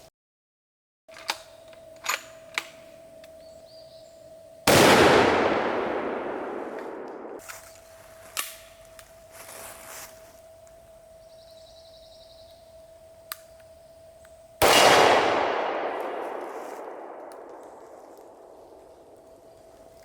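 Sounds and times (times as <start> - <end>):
gunshot with echo: 4.7 - 7.4, 14.6 - 18.4
sharp clicks: 13.2 - 19.3.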